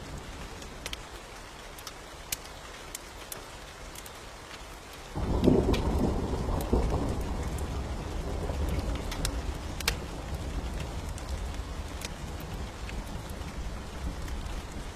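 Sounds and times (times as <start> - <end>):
steady rain: 0.0 - 14.9
wood fire crackling: 0.0 - 14.9
thunder rolling: 5.2 - 14.9.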